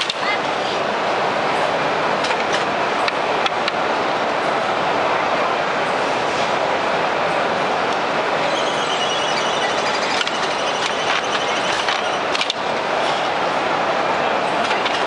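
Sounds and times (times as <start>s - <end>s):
binding machine running: 8.1s - 12.8s
faint high whirring: 8.3s - 12.4s.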